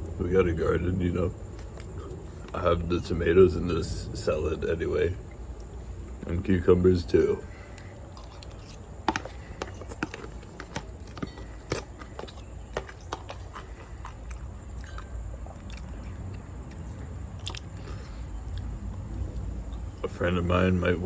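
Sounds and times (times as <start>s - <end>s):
person chewing salad: 1.4s - 2.6s, 7.4s - 20.0s.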